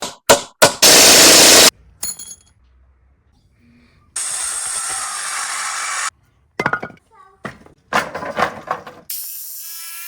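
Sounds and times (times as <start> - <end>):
loud power tool: 0.8 - 1.7, 4.2 - 6.1
steady tool noise: 0.8 - 1.7, 4.2 - 6.1.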